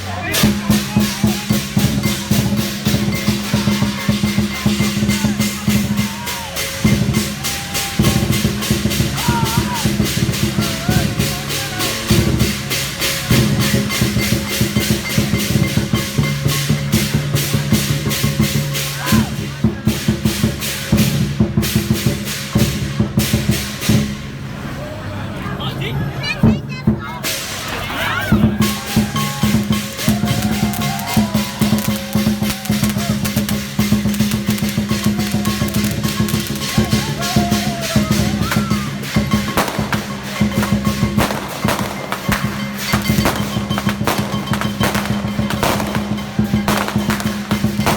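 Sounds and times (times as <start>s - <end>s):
large drum beating: 0.0s - 24.5s, 26.4s - 47.9s
cymbals clashing: 0.0s - 24.6s, 27.2s - 47.9s.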